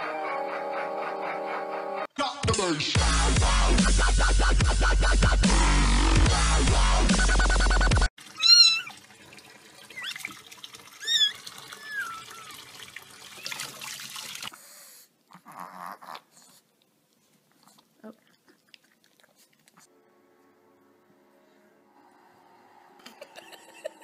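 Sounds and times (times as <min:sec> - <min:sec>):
tap water running into sink: 0:08.2 - 0:14.5
kitten meowing: 0:08.4 - 0:09.0.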